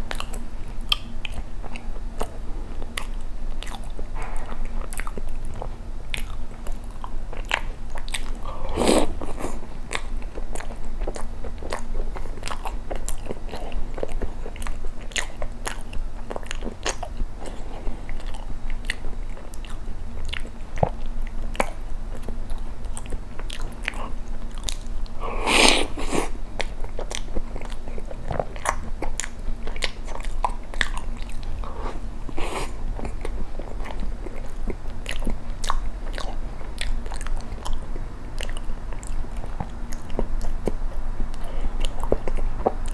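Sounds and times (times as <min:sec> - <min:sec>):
wet chewing mouth clicks: 0:00.1 - 0:37.8, 0:38.4 - 0:42.9
loud mouth sounds: 0:08.4 - 0:09.6, 0:25.2 - 0:26.4.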